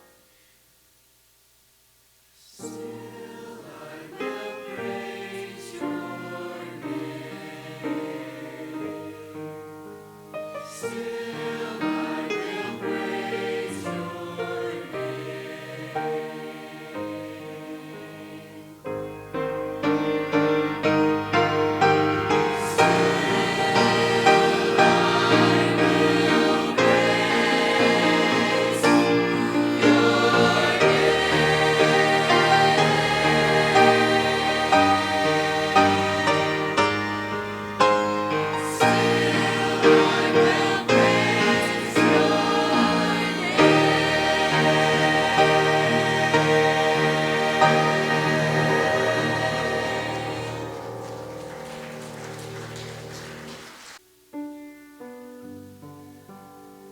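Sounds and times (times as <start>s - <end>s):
choir singing gospel in harmony: 2.4s - 54.0s
piano chords: 2.6s - 56.9s.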